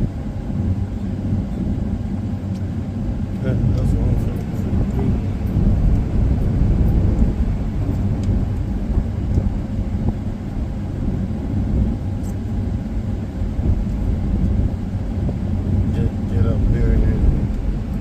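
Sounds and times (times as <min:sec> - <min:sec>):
car interior road and engine rumble: 0:00.0 - 0:18.0.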